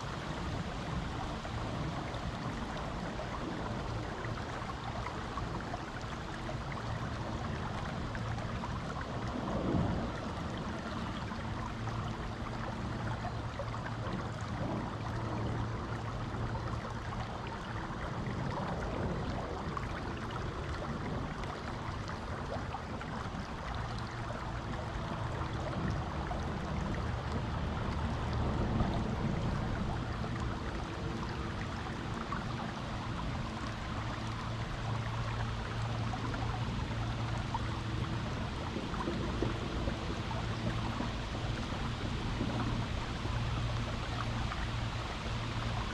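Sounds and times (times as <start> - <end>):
river water rushing over rocks: 16.9 - 45.9.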